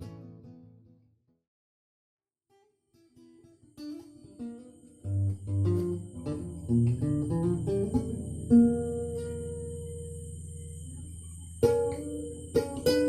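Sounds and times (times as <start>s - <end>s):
guitar music: 0.0s - 1.0s, 2.6s - 13.0s.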